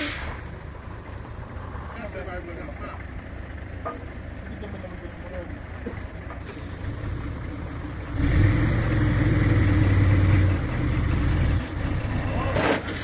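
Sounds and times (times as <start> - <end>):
truck diesel engine revving: 6.4 - 13.0.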